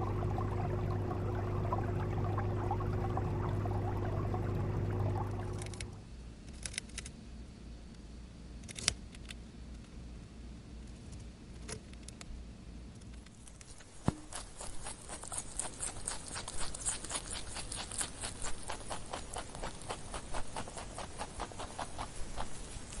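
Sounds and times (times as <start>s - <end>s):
rabbit chewing: 13.0s - 23.0s.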